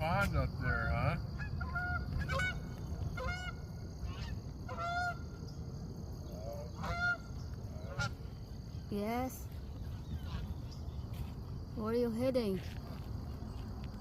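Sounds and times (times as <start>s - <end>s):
steady low rumble: 0.0s - 14.0s
geese honking: 0.6s - 5.4s, 6.3s - 8.5s, 9.8s - 10.8s.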